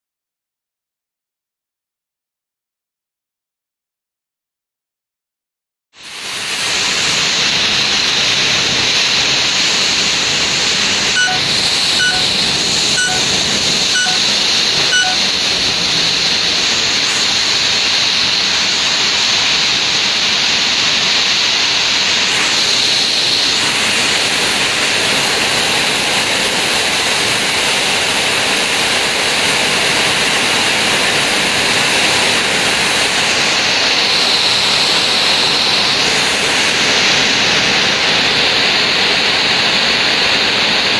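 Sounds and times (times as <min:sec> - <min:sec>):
short beeps: 0:11.2 - 0:12.4, 0:13.0 - 0:14.3, 0:14.9 - 0:15.3.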